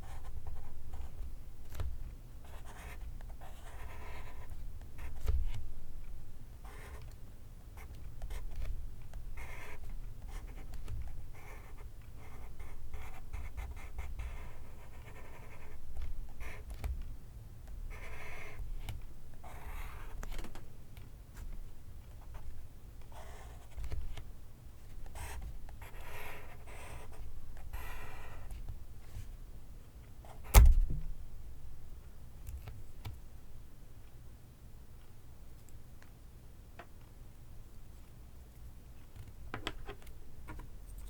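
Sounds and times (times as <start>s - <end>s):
pencil writing on paper: 2.5s - 5.2s, 9.4s - 10.7s, 11.4s - 16.7s, 17.9s - 18.6s, 23.2s - 23.8s, 25.2s - 28.5s.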